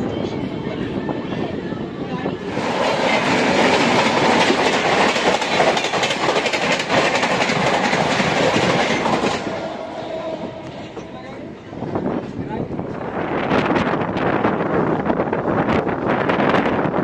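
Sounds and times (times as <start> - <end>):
train rushing past: 0.0 - 17.0
wheels clicking over track: 2.6 - 9.6.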